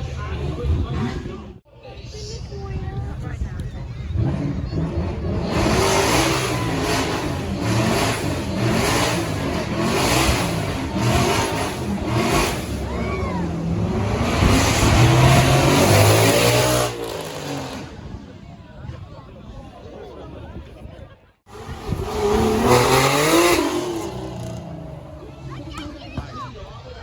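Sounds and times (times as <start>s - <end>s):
supercar engine revving: 4.1s - 18.1s, 21.5s - 25.8s.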